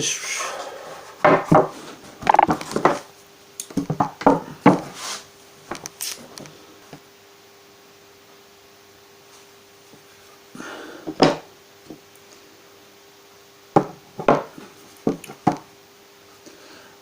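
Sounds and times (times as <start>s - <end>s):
wooden knocks and clunks: 1.2s - 3.0s, 13.8s - 15.6s
scrape on workbench: 4.8s - 5.3s.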